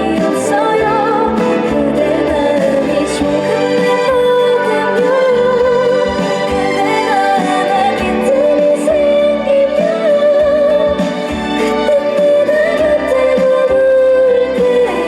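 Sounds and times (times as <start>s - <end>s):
band accompaniment: 0.0s - 15.0s
woman singing: 0.0s - 15.0s.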